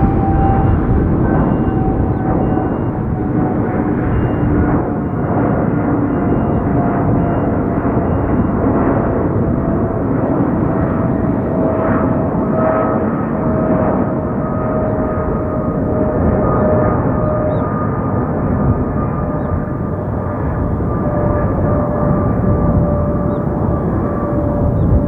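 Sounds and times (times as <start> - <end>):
whining tones dropping in pitch: 0.0 - 4.8
jet engines running: 0.0 - 6.1.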